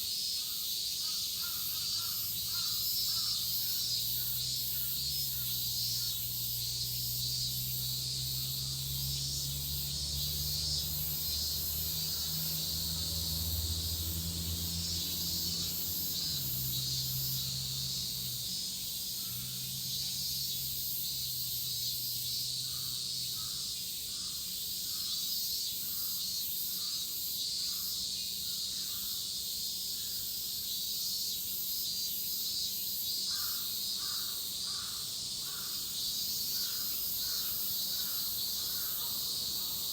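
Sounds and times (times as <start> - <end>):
cicadas shrilling: 0.0 - 39.9
crows cawing: 1.1 - 3.4, 33.3 - 35.9, 36.6 - 39.2.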